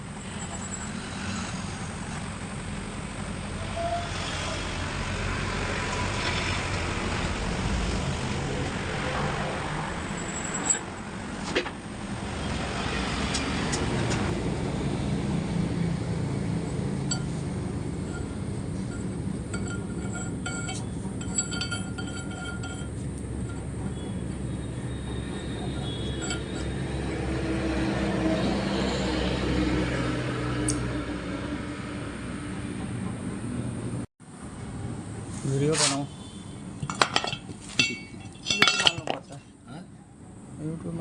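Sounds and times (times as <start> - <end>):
metal lathe running: 17.0 - 27.4
light metallic clinks: 18.1 - 24.1, 36.8 - 39.4.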